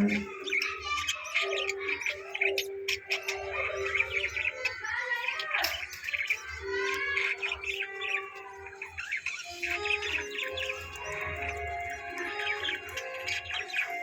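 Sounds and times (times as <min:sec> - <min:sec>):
budgerigars chirping: 0:00.0 - 0:14.0.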